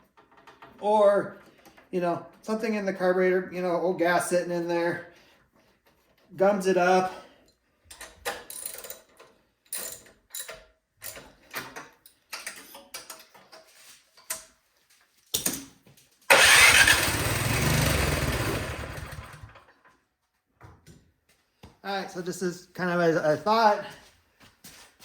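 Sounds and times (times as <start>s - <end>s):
small engine firing: 16.3s - 19.6s.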